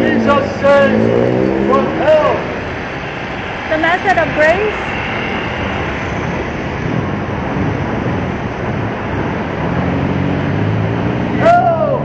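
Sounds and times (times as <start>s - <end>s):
low engine hum: 0.0s - 12.0s
vehicles rushing past: 0.0s - 12.0s.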